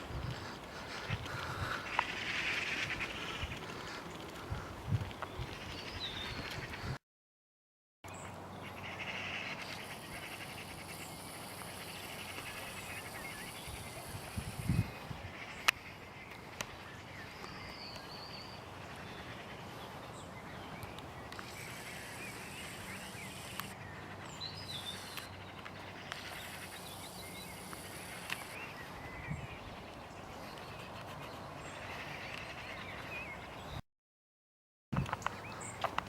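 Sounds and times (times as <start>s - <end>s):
small birds chirping: 0.0s - 7.0s, 8.1s - 33.8s, 35.0s - 36.0s
faint clicks: 0.3s - 5.6s.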